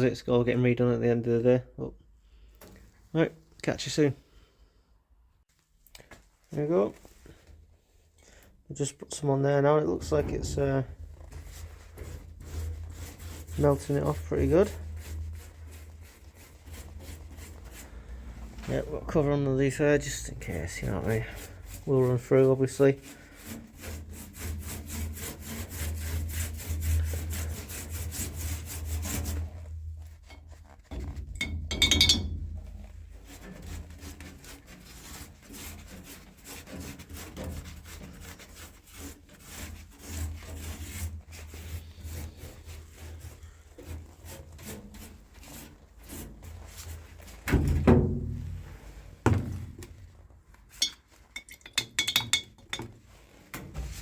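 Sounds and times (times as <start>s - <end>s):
scraping on steel floor: 10.0s - 18.9s, 53.2s - 54.0s.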